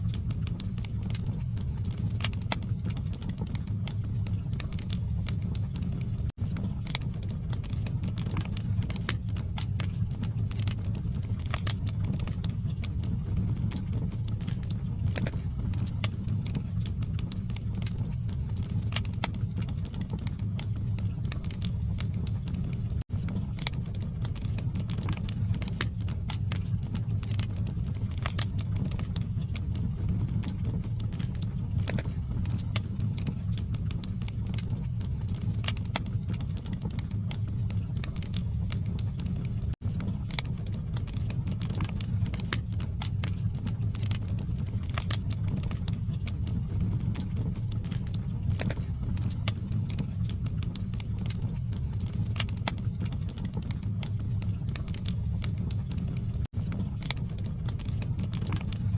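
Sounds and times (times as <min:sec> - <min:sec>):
log fire crackling and popping: 0:00.0 - 0:58.9
low rumble of burning: 0:00.0 - 0:58.9.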